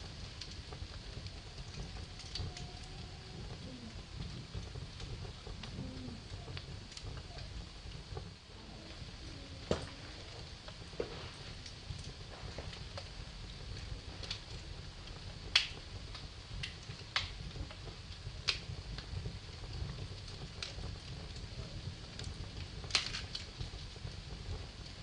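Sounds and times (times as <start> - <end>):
low fire rumble: 0.0 - 25.0
wood fire crackling and popping: 0.0 - 25.0.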